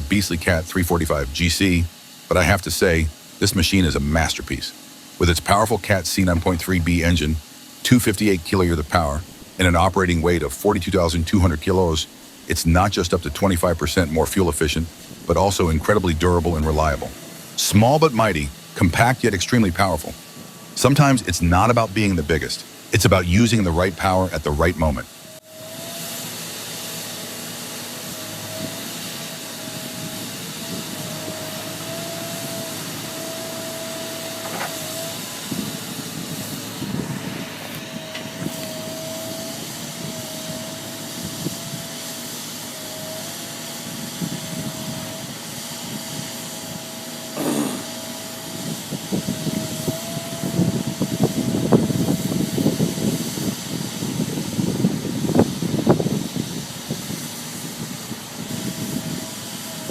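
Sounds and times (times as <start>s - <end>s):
excavator engine whine: 0.0s - 59.9s.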